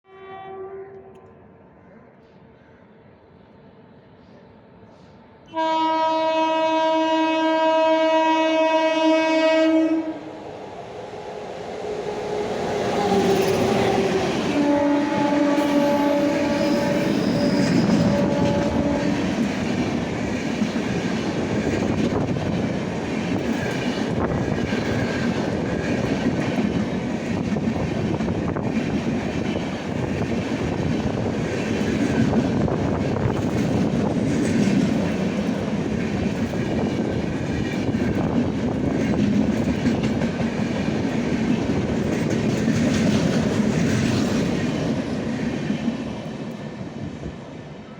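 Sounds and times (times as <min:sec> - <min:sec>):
train horn: 0:00.1 - 0:01.3, 0:05.5 - 0:10.4, 0:12.0 - 0:19.7
train rumble and wheel clatter: 0:00.6 - 0:47.9.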